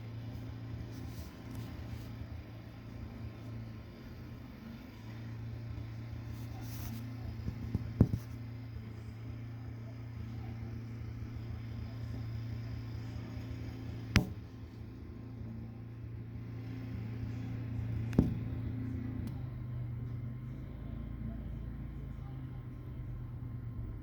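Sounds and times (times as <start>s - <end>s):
low motor hum: 0.0s - 24.0s
sharp knocks: 14.2s - 14.5s, 18.1s - 18.6s.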